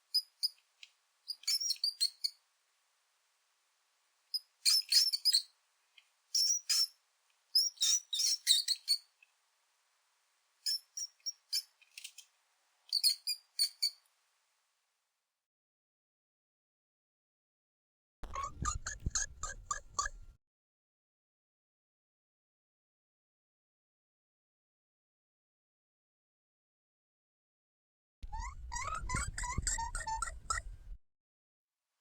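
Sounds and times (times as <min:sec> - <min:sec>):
high-pitched chirping squeaks: 0:01.3 - 0:02.4, 0:04.4 - 0:05.5, 0:06.4 - 0:07.0, 0:07.6 - 0:09.1, 0:10.7 - 0:12.2, 0:12.9 - 0:14.0, 0:18.2 - 0:20.3, 0:28.2 - 0:31.0.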